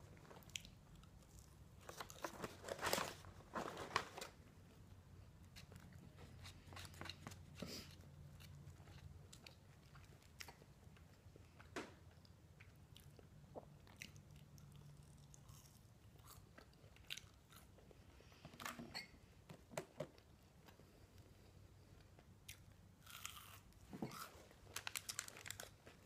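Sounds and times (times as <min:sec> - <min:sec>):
person chewing crunchy food: 0:05.6 - 0:18.0, 0:22.0 - 0:26.0.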